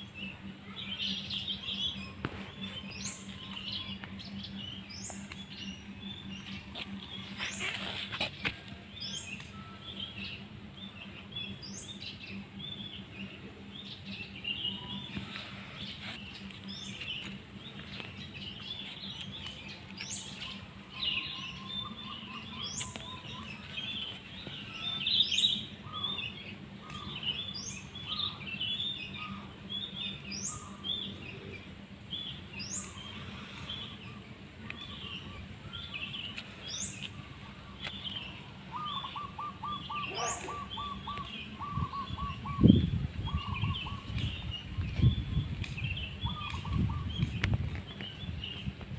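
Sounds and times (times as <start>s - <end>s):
rapid bird trill: 0.0s - 45.4s
songbirds chirping: 0.0s - 48.9s
high rising bird call: 34.7s - 45.2s.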